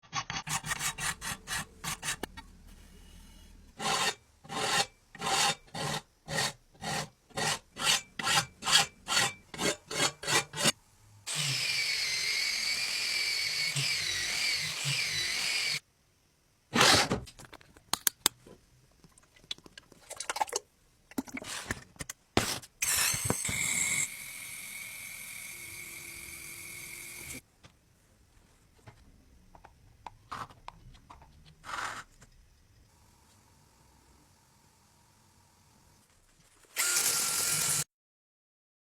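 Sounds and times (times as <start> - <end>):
blade being scrubbed by hand: 0.2 - 10.8
power tool whining: 11.3 - 15.8, 22.8 - 27.4, 36.8 - 37.9.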